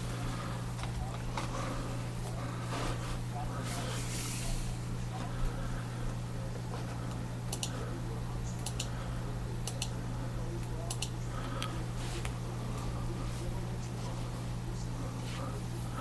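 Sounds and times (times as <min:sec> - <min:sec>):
steady low hum: 0:00.0 - 0:16.0
light clicks in pairs: 0:07.5 - 0:07.8, 0:08.6 - 0:08.9, 0:10.9 - 0:11.7.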